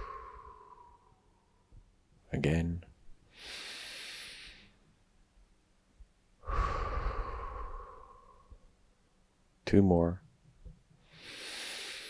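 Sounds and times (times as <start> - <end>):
person breathing deeply: 0.0 - 1.6, 3.3 - 4.8, 6.4 - 8.7, 11.0 - 12.0.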